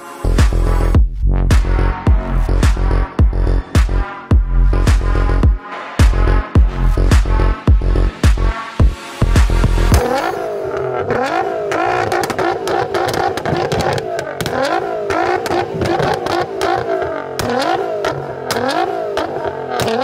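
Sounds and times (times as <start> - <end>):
car engine revving in blips: 9.4 - 20.0
exhaust pops and bangs: 11.0 - 20.0.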